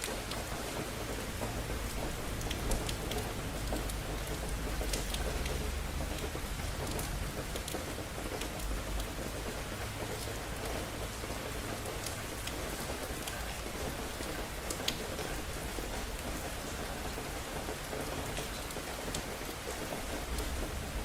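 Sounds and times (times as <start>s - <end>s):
rain on hard surfaces: 0.0s - 21.0s.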